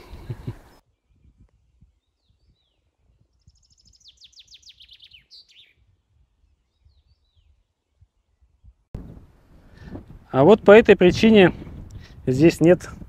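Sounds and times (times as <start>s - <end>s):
songbird trill: 0.0s - 8.8s
high bird chirps: 0.6s - 5.9s.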